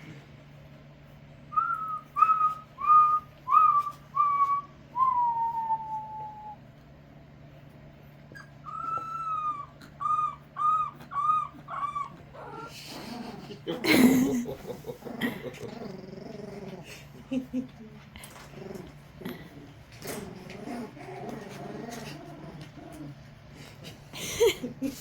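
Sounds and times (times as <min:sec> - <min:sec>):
man whistling: 0:01.5 - 0:06.6
dogs howling: 0:08.6 - 0:13.5.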